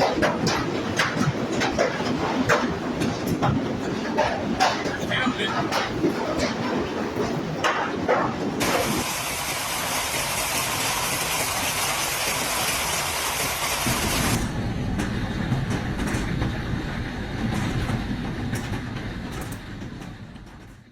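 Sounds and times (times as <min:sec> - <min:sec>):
heavy hail and rain: 0:07.6 - 0:19.2
low rumble: 0:13.9 - 0:20.9.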